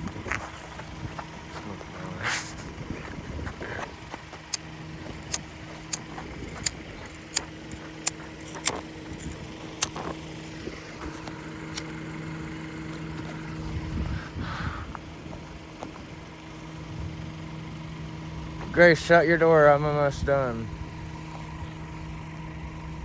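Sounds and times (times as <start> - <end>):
car engine idling: 0.0 - 23.0
sharp high clicks: 4.4 - 10.1.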